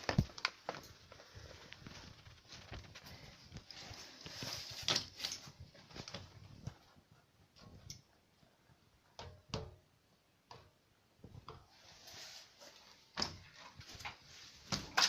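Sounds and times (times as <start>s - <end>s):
soft rustle: 0.0s - 7.8s, 11.4s - 15.0s.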